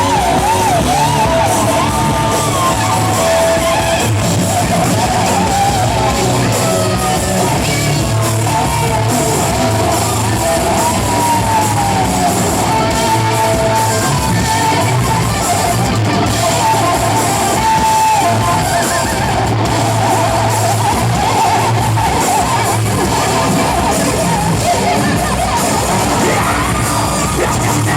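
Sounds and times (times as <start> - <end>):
electric guitar: 0.0 - 27.9
live rock band playing: 0.0 - 27.9.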